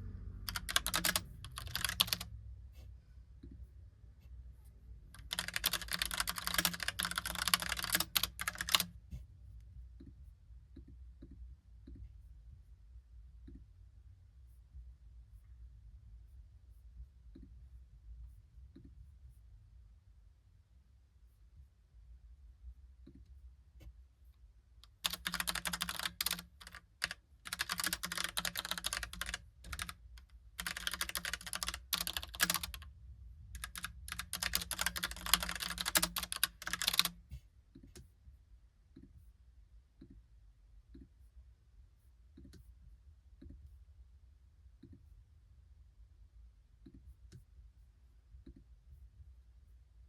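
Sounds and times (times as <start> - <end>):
mechanical keyboard typing: 0.5 - 2.3, 5.2 - 8.9, 24.8 - 32.9, 33.6 - 37.2.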